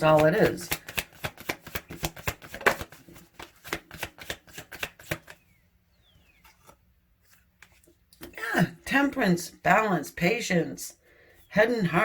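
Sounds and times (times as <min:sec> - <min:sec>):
cards being shuffled: 0:00.0 - 0:05.4.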